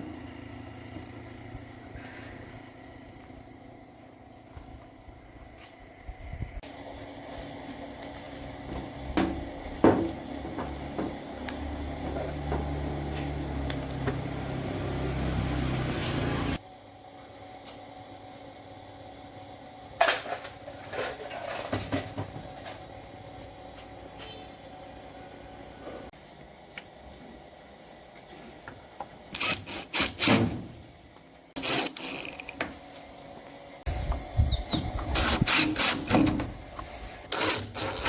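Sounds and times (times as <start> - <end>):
electric motor humming: 6.7 - 16.6, 29.3 - 30.4, 31.6 - 32.7, 33.9 - 38.0
hard parts knocking: 29.4 - 30.6, 31.6 - 32.7.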